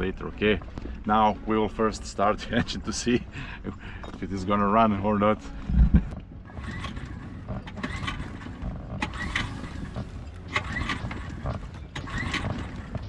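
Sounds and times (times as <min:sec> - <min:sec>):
outboard motor pull-starter whirr: 0:04.0 - 0:13.0.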